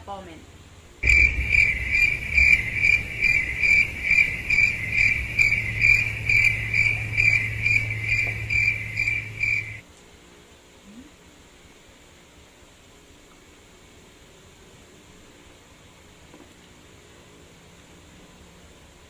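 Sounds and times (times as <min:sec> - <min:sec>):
voice: 0:00.0 - 0:01.3, 0:10.9 - 0:11.1
crickets chirping: 0:01.0 - 0:09.8
low hum: 0:01.0 - 0:09.8.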